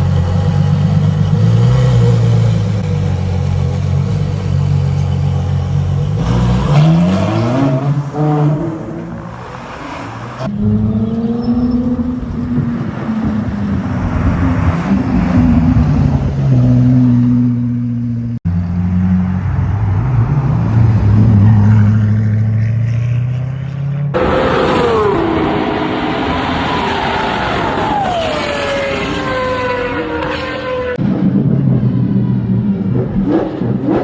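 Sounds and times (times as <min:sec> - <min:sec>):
deep car engine revving: 0:32.7 - 0:34.0.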